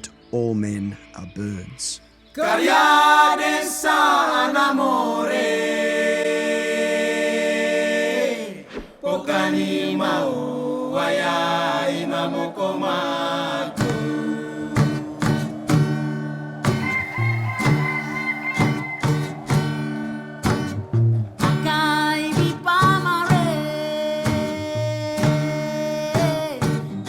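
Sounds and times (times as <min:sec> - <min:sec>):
group chanting: 0:02.4 - 0:22.7
short sharp strokes: 0:13.8 - 0:21.8.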